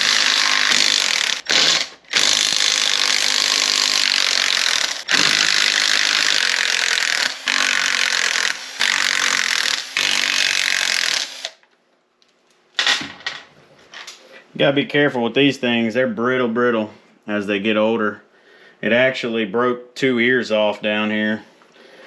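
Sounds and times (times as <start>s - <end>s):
power tool running: 0.0s - 11.6s.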